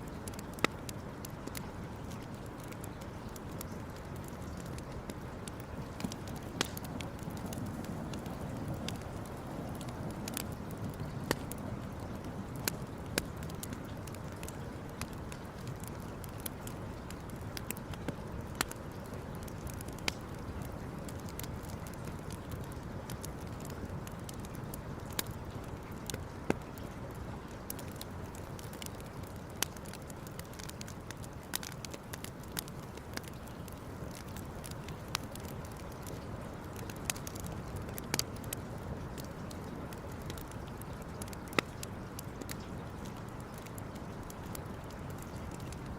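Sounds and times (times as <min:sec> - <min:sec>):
campfire crackling and popping: 0:00.0 - 0:45.9
low rumble of fire: 0:00.0 - 0:45.9
steady low rumble: 0:04.6 - 0:14.6.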